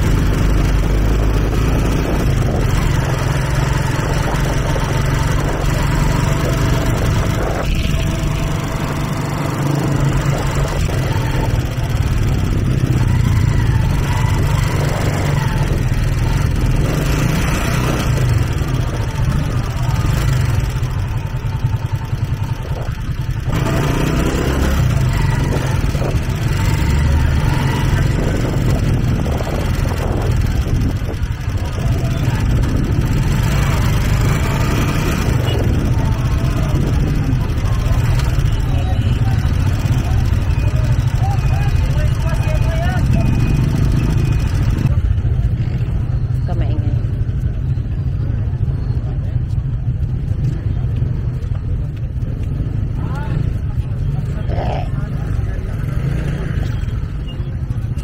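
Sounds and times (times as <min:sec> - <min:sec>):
street noise: 0:00.0 - 0:58.0
vehicle engines rumbling: 0:00.0 - 0:58.0
faint voices: 0:24.7 - 0:58.0.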